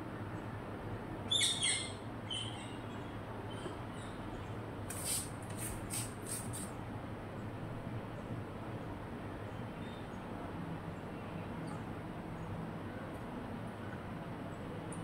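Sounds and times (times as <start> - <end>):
shrill bird calls: 1.3 - 4.2
very high bird chirps: 1.3 - 4.3.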